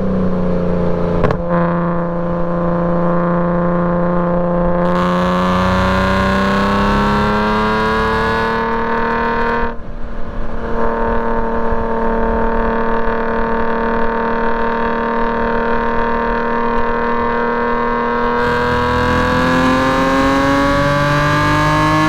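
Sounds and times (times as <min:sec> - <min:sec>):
car engine under load: 0:04.9 - 0:10.6, 0:18.1 - 0:22.0.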